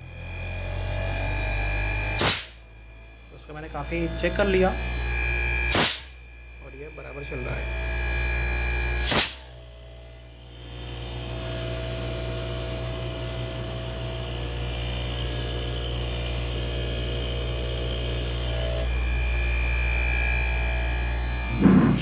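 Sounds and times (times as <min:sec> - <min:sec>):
loud click: 0:02.2 - 0:02.6, 0:05.7 - 0:06.1, 0:09.0 - 0:09.4
air conditioner compressor humming: 0:02.2 - 0:09.5.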